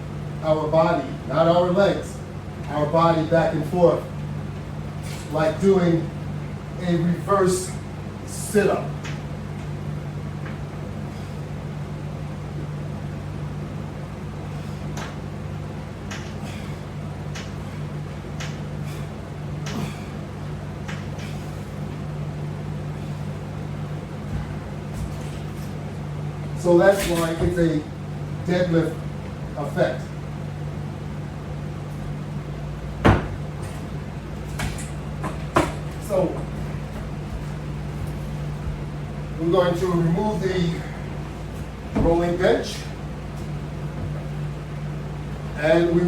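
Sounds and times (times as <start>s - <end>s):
low mechanical hum: 0.0s - 46.0s
sharp knocks: 33.0s - 33.8s.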